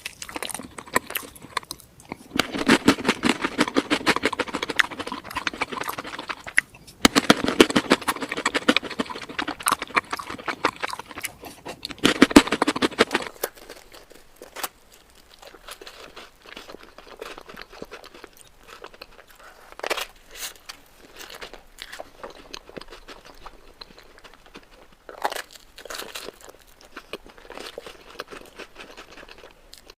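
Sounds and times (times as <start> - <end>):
mouth sounds: 0.0 - 13.6
person crunching and chewing sweets: 0.0 - 30.0.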